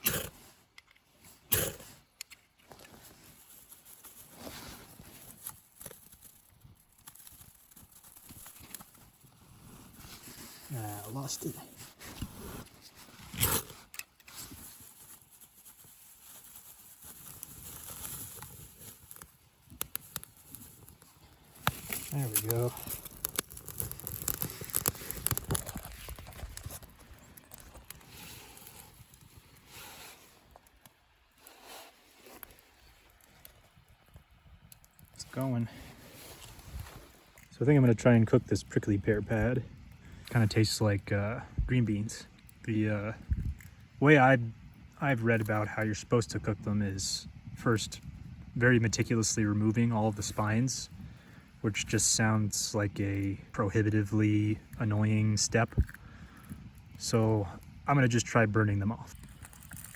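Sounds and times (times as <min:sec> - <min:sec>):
campfire crackling and popping: 0:00.0 - 0:59.9
soft rustle of bark: 0:02.7 - 0:37.5.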